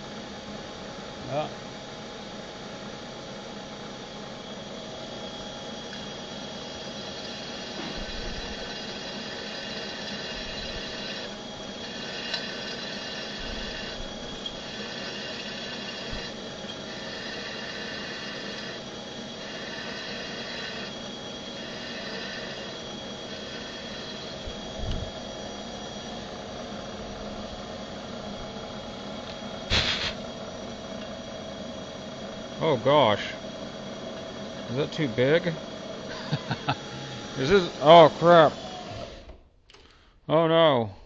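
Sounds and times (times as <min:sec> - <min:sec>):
milling machine spindle running: 0:02.1 - 0:39.4
drill bit cutting metal: 0:05.9 - 0:26.2, 0:31.9 - 0:39.3.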